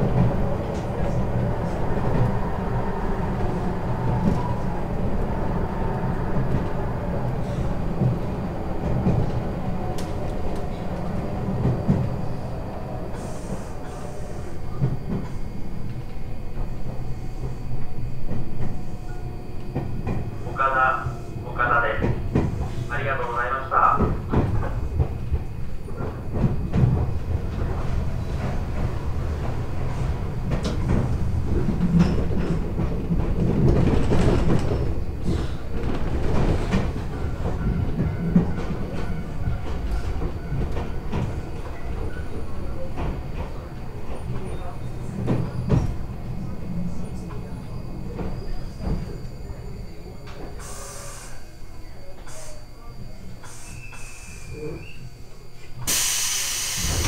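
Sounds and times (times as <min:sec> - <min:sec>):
train rumbling along track: 0:00.0 - 0:57.0
sharp train clicks: 0:53.4 - 0:54.5.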